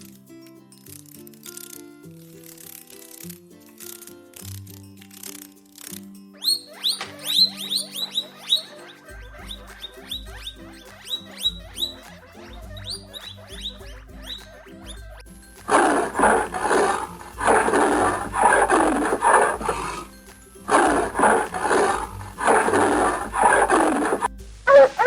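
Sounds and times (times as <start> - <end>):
background music: 0.0 - 25.0
animal roaring: 15.7 - 20.1, 20.7 - 25.0.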